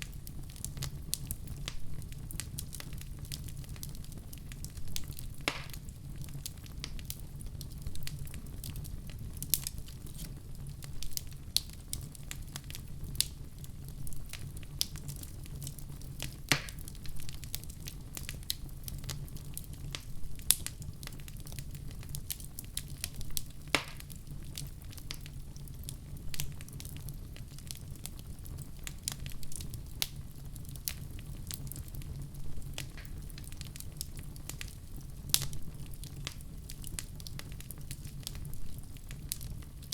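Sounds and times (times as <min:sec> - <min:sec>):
low fire rumble: 0:00.0 - 0:39.9
wood fire crackling and popping: 0:00.0 - 0:39.9.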